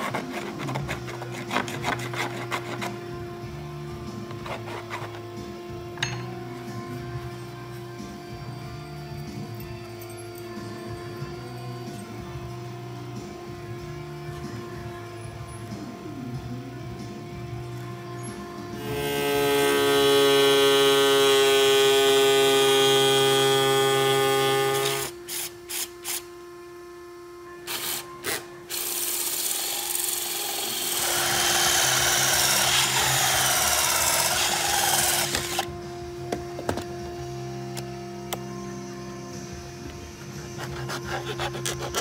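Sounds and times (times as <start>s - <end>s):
power tool motor whine: 17.7s - 42.0s.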